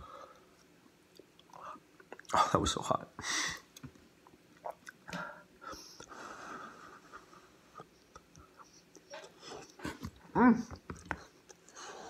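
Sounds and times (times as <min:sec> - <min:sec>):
chewing food: 0:07.8 - 0:11.8.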